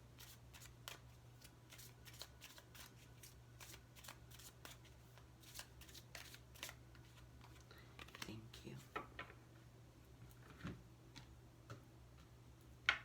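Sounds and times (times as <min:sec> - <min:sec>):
cards being shuffled: 0:00.2 - 0:08.3.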